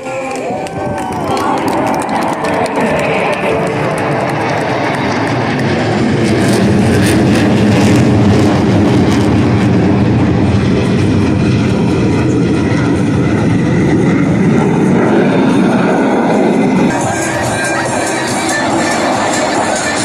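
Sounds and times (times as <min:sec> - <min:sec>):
jets roaring past: 0:00.0 - 0:20.0.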